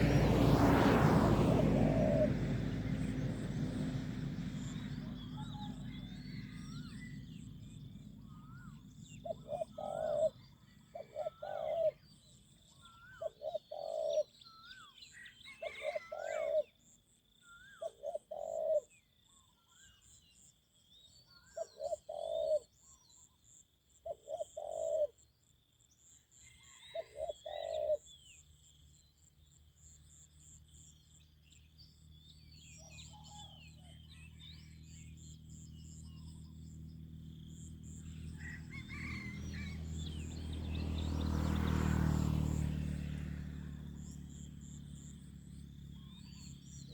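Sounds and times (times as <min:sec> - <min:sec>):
dove cooing: 0:01.6 - 0:07.3, 0:08.3 - 0:12.0, 0:13.0 - 0:14.3, 0:15.6 - 0:16.7, 0:17.8 - 0:18.9, 0:21.6 - 0:22.6, 0:24.1 - 0:25.1, 0:27.0 - 0:28.0, 0:38.4 - 0:40.0
small birds chirping: 0:26.1 - 0:46.9.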